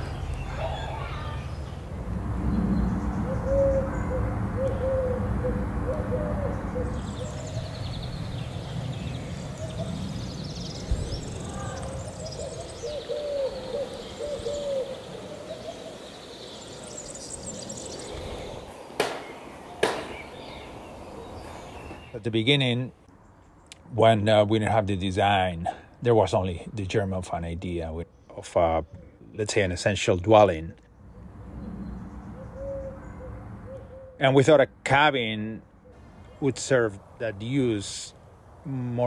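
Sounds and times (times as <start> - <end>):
low warbling bird calls: 0.0 - 22.5, 30.4 - 34.6, 35.2 - 39.0
small birds chirping: 0.0 - 24.0
low rumble: 1.4 - 12.8.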